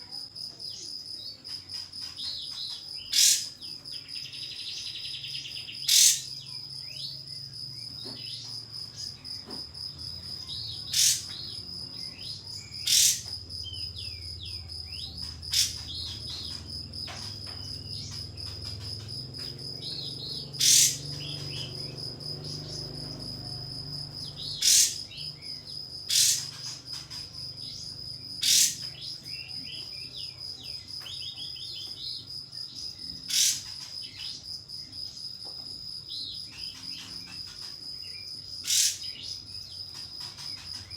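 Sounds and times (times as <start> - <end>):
high cricket-like trill: 0.0 - 40.9
soft bird twittering: 0.7 - 34.4, 36.1 - 40.9
songbird sharp calls: 2.1 - 7.1, 10.4 - 23.2, 24.1 - 30.4, 33.2 - 34.4, 36.4 - 40.9.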